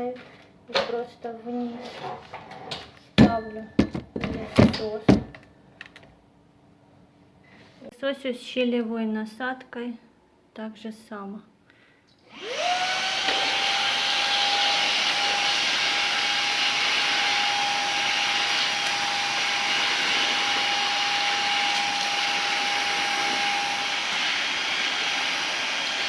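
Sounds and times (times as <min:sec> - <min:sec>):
vacuum motor whine: 0:12.3 - 0:26.0.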